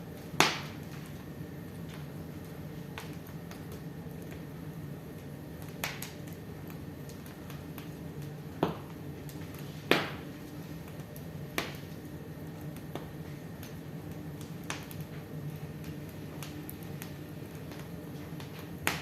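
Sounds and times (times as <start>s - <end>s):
wood fire hissing: 0.0s - 19.0s
sharp fire pops: 0.3s - 1.2s, 5.6s - 6.3s, 7.1s - 12.0s, 15.8s - 19.0s.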